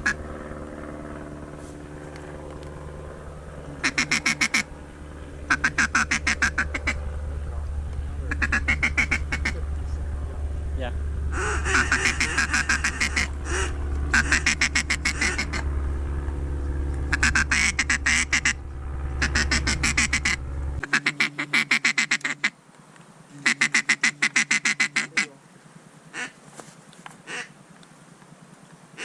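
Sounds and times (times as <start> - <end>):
steady low hum: 0.0 - 29.0
ducks quacking: 3.8 - 4.7, 5.5 - 7.0, 8.2 - 9.6, 11.3 - 15.7, 17.1 - 18.6, 19.2 - 22.6, 23.3 - 25.4, 26.1 - 26.4, 27.2 - 27.6.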